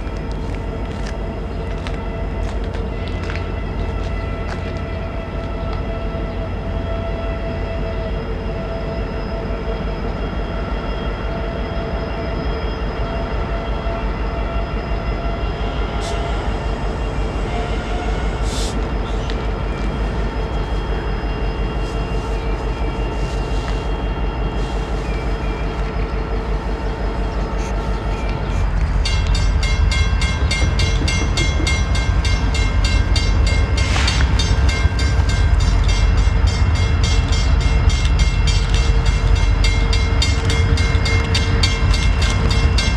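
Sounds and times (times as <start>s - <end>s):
diesel train engine rumble: 0.0s - 42.9s
humming steady tones: 0.0s - 42.9s
train wheels clattering: 28.0s - 42.9s.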